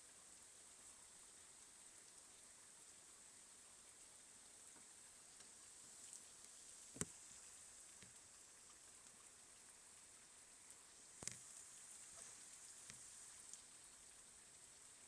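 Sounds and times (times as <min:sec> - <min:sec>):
faint rain hiss: 0:00.0 - 0:15.0
raindrops tapping a surface: 0:04.6 - 0:09.4, 0:11.1 - 0:14.3.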